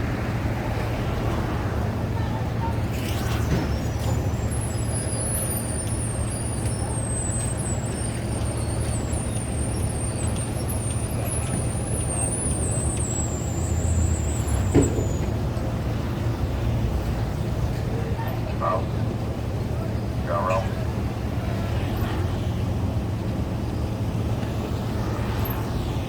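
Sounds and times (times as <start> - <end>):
low engine rumble: 0.0 - 26.0
high-pitched whine: 24.4 - 26.0.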